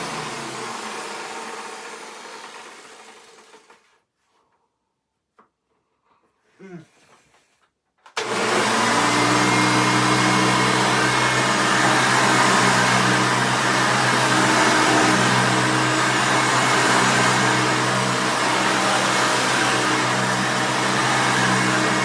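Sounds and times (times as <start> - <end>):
vacuum cleaner running: 0.0 - 3.7, 8.2 - 22.0.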